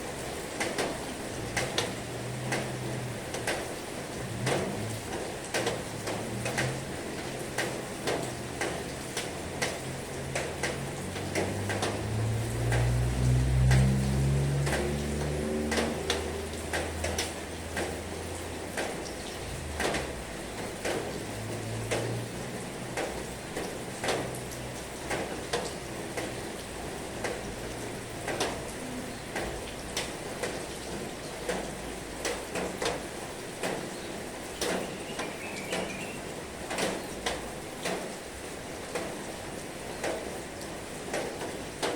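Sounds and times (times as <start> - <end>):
heavy rain hissing: 0.0 - 41.9.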